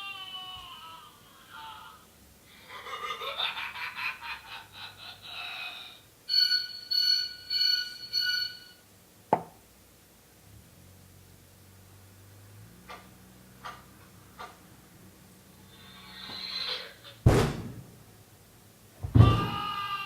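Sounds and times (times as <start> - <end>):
fast pulsing laugh-like sound: 2.6 - 6.0.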